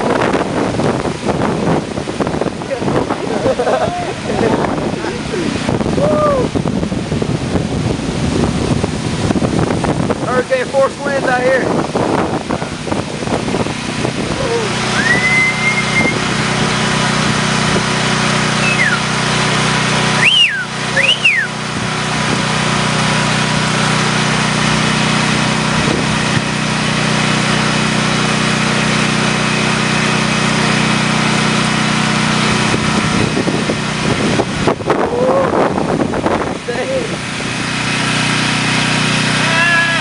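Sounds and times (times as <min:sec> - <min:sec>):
hurricane wind and rain rushing: 0:00.0 - 0:26.6, 0:32.4 - 0:37.8
low hum: 0:12.3 - 0:27.8
whistling glides: 0:14.9 - 0:16.2, 0:18.5 - 0:19.1, 0:20.2 - 0:21.6.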